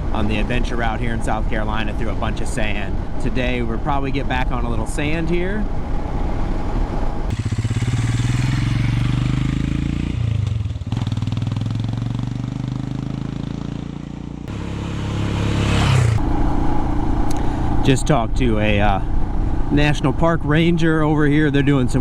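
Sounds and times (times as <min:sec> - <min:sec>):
motorcycle engine running: 0:07.3 - 0:17.2.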